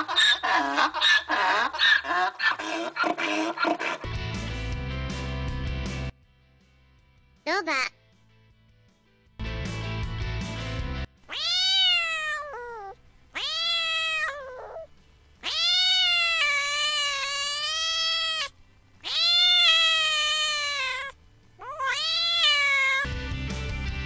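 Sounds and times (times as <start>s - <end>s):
cat meowing: 11.3s - 23.1s.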